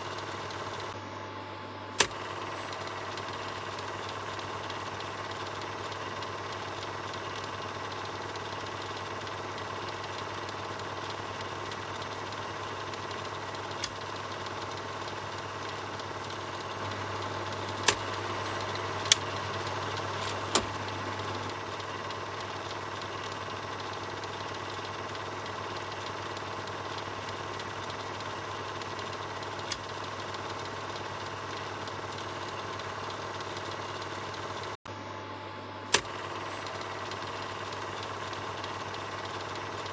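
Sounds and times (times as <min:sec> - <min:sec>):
film projector whirring: 0:00.0 - 0:39.9
sharp clicks: 0:02.0 - 0:34.7, 0:35.9 - 0:39.9.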